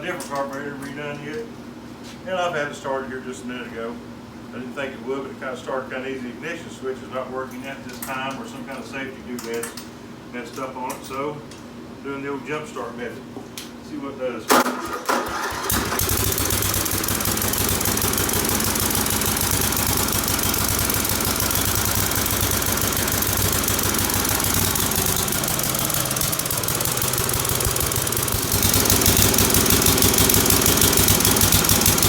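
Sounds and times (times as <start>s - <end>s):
small mower engine running: 14.6s - 32.0s.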